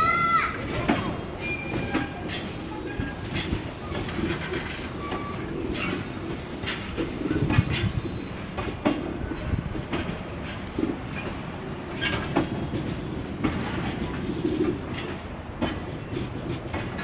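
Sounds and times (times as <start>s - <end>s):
low train rumble: 0.0s - 17.0s
train wheels clacking over rail joints: 0.0s - 17.0s
faint wheel squeals: 1.4s - 6.1s.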